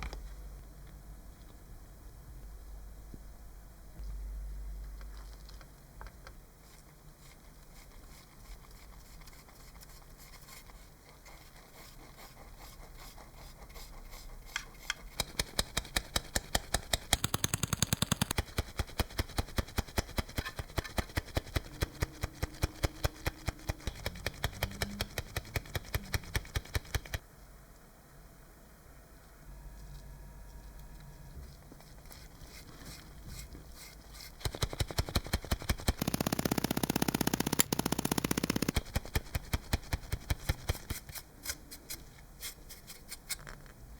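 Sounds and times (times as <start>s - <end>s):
rapid even knocks: 15.2s - 18.4s, 34.4s - 40.6s.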